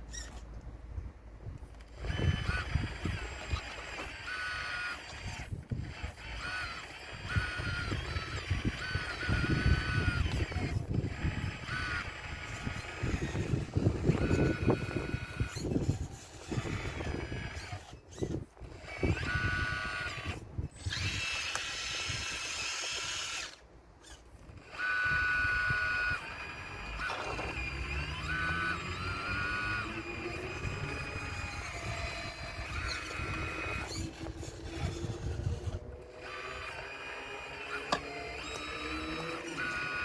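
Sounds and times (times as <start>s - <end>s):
hydraulic pump whining: 1.6s - 40.0s.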